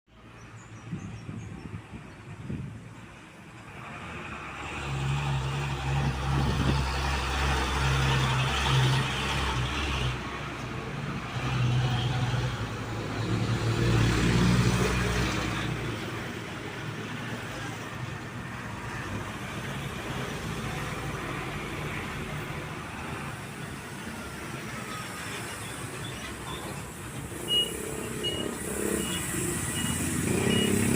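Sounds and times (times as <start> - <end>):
traffic noise: 0.1 - 30.9
heavy truck engine droning: 19.0 - 30.9.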